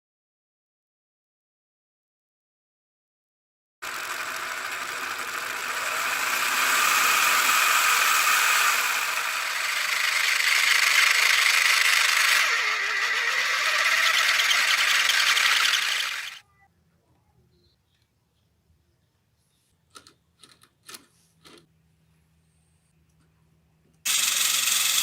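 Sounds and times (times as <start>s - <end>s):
small motor mechanism running: 3.8s - 16.4s, 24.1s - 25.0s.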